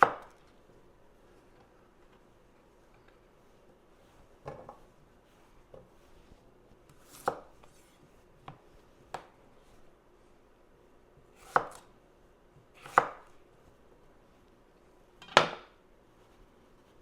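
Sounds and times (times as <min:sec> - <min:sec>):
knife chopping on cutting board: 0:00.0 - 0:00.4, 0:06.9 - 0:07.9, 0:11.4 - 0:11.8, 0:12.8 - 0:13.3.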